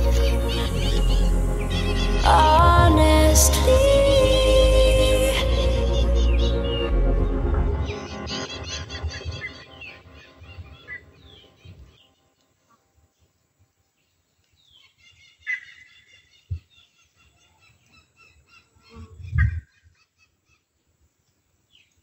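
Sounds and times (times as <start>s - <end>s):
birds chirping and calling: 0.0s - 3.2s, 3.8s - 13.3s, 14.4s - 20.8s
background music: 0.0s - 12.4s.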